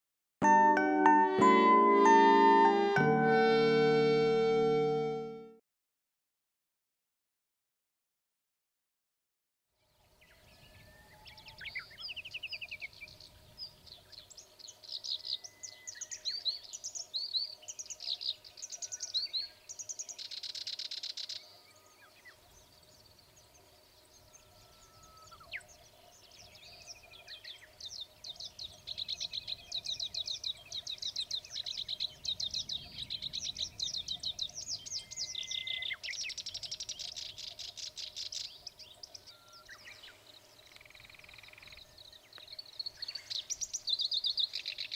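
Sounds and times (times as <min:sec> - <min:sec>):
reed warbler singing: 0:10.4 - 0:44.9.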